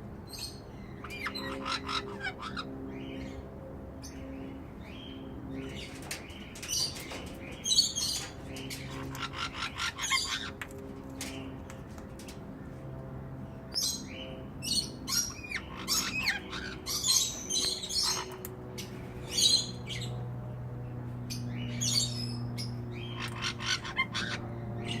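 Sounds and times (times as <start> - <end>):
low steady hum: 0.0 - 25.0
parrot squawks and chirps: 1.0 - 2.7.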